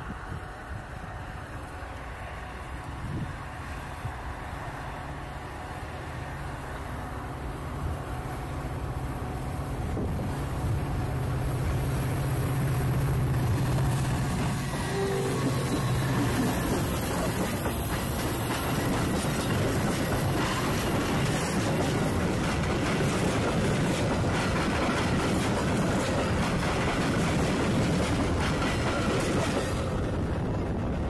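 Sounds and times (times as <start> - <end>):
train wheels rumbling on rails: 0.0 - 31.0
rail joint clicks: 11.2 - 31.0.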